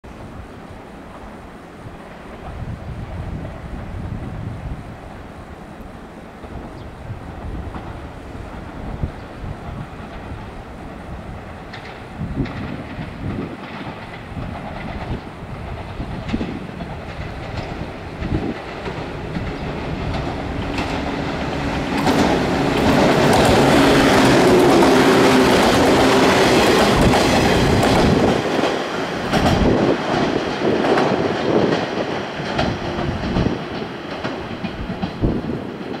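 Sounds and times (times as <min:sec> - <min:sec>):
train wheels clattering over rail joints: 0:06.3 - 0:36.0.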